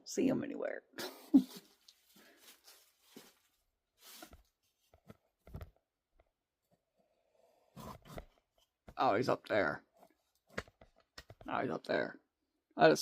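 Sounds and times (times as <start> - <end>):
footsteps in dry leaves: 2.0 - 4.3.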